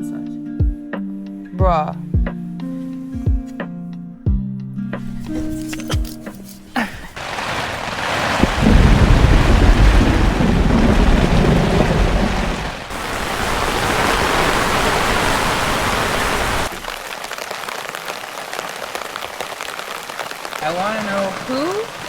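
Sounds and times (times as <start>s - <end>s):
patter of raindrops: 6.7s - 22.0s
heavy rain falling: 6.8s - 22.0s
deep rumble: 7.2s - 15.5s.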